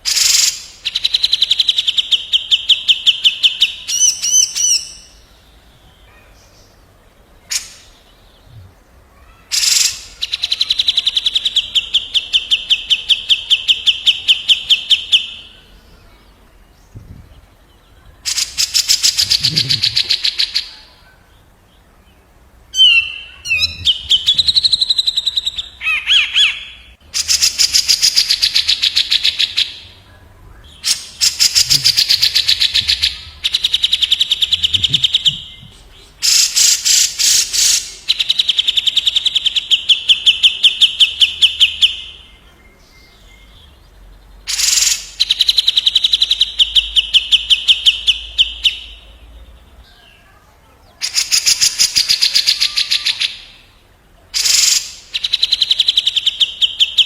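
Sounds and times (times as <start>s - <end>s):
songbirds rattling song: 0.0s - 57.0s
bird warbled phrase: 18.0s - 21.3s, 22.7s - 38.4s, 51.0s - 53.6s.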